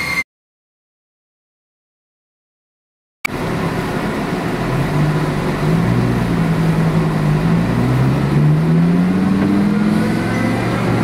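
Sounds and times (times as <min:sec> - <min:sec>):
car engine revving under load: 0:03.3 - 0:11.0.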